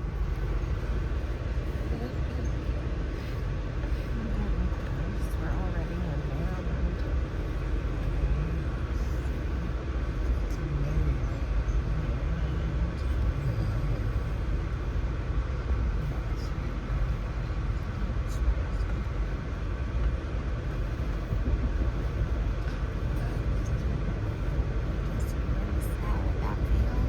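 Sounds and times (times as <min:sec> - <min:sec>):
train running on rails: 0:00.0 - 0:27.0.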